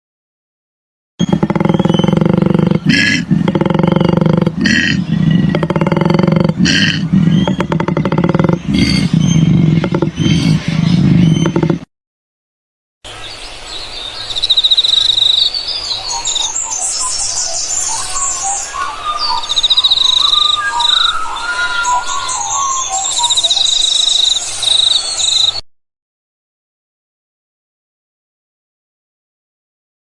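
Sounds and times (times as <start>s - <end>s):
birds singing and calling: 1.2s - 11.9s, 13.1s - 25.6s
fast buzzy bird trills: 1.2s - 11.9s.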